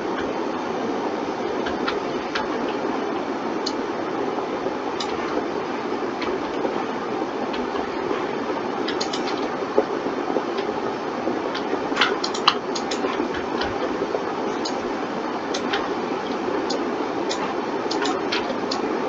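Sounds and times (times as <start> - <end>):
steady hiss: 0.0 - 19.0
mouse and keyboard clicks: 8.9 - 9.5, 11.6 - 13.9, 15.6 - 18.8.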